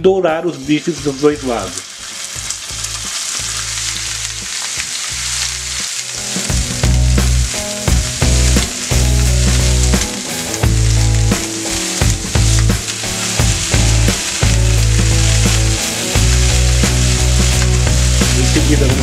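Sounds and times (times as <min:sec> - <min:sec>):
meat sizzling in a frying pan: 0:00.5 - 0:19.0
held pitched notes: 0:06.5 - 0:19.0.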